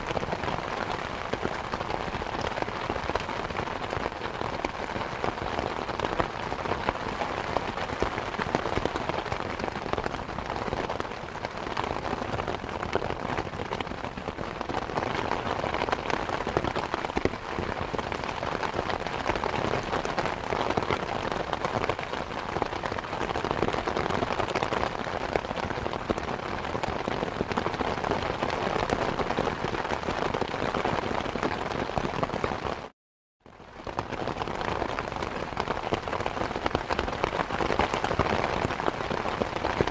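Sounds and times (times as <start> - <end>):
steady rain: 0.0 - 32.9, 33.5 - 39.9.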